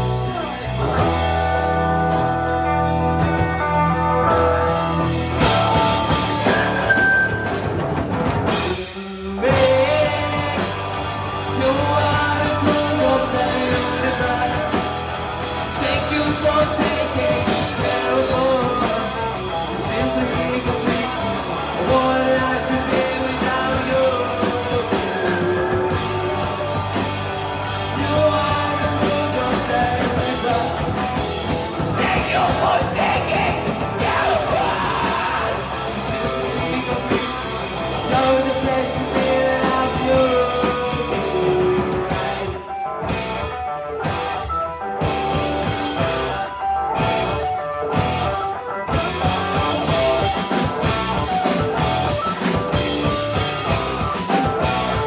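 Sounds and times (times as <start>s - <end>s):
live rock band playing: 0.0s - 55.0s
lead singer singing: 8.9s - 42.8s.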